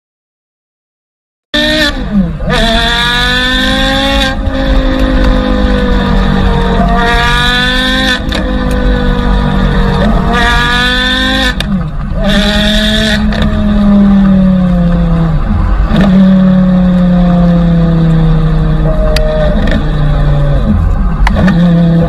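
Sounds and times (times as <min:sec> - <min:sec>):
car engine revving: 0:01.6 - 0:22.0.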